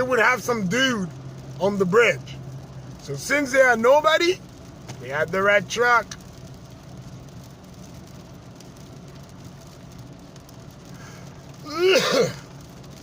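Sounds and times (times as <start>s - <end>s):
car driving in rain: 0.0s - 13.0s
person vocal sound: 11.6s - 12.3s.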